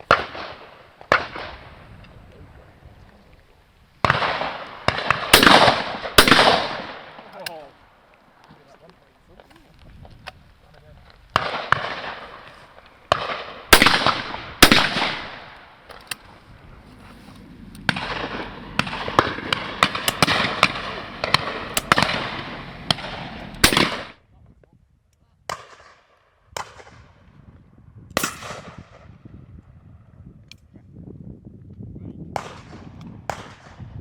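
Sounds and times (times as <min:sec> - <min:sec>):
shotgun shots echoing: 0:00.0 - 0:01.9, 0:04.0 - 0:08.0, 0:11.3 - 0:16.4, 0:17.8 - 0:24.2, 0:25.5 - 0:27.0, 0:28.2 - 0:29.1, 0:32.4 - 0:33.8.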